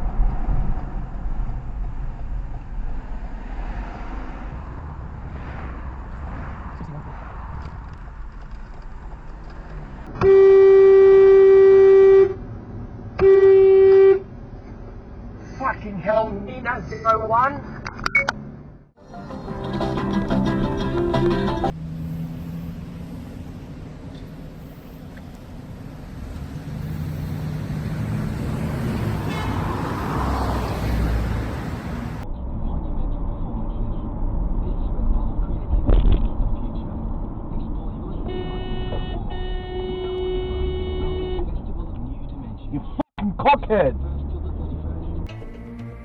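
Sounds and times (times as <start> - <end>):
road noise: 0.0 - 46.0
car horn honking: 10.2 - 12.4, 13.2 - 14.3, 29.2 - 30.0, 38.2 - 41.6.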